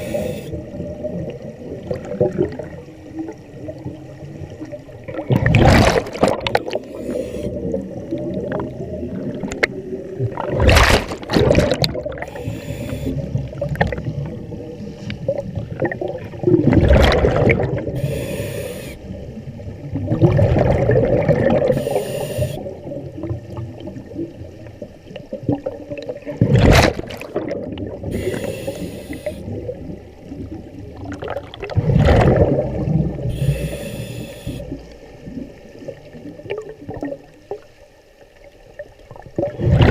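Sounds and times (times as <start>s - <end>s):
regulator hiss on inhale: 0.0s - 0.7s, 6.8s - 7.7s, 12.2s - 13.4s, 18.0s - 19.1s, 21.7s - 22.7s, 28.1s - 29.5s, 33.3s - 34.8s
rush of exhaled bubbles: 0.0s - 37.6s, 39.0s - 39.9s.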